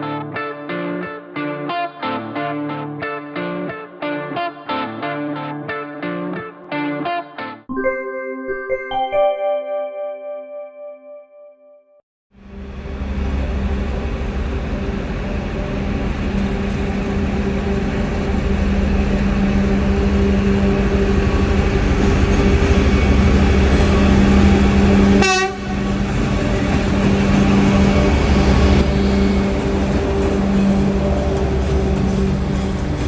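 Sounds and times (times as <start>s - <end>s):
locomotive engines droning: 12.4s - 33.0s
train horn toot: 21.3s - 33.0s.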